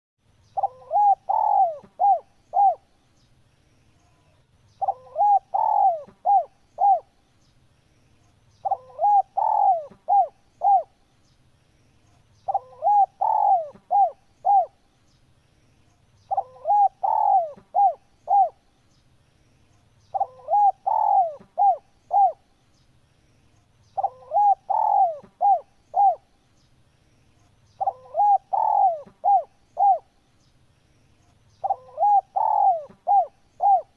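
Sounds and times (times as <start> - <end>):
dove cooing: 0.6 - 2.9, 4.8 - 7.1, 8.6 - 11.0, 12.5 - 14.8, 16.3 - 18.6, 20.1 - 22.4, 24.0 - 26.3, 27.8 - 30.1, 31.6 - 33.9.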